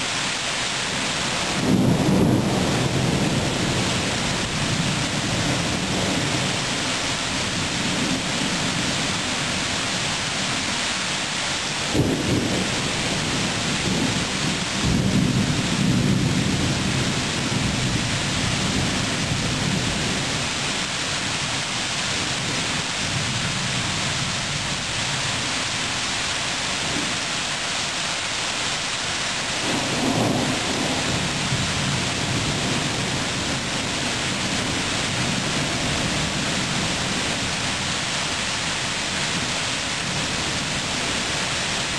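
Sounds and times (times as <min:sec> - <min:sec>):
heavy rain: 0:00.0 - 0:41.9
rolling thunder rumbles: 0:01.2 - 0:10.0, 0:11.8 - 0:20.8, 0:29.5 - 0:37.9
thunder crack: 0:01.6 - 0:04.1, 0:11.9 - 0:17.7, 0:29.6 - 0:33.7.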